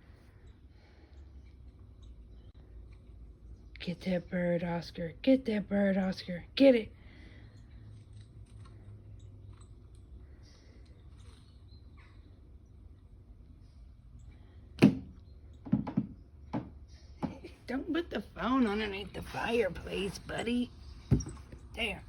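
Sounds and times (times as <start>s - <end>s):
phone knocked on the floor: 15.7s - 16.7s.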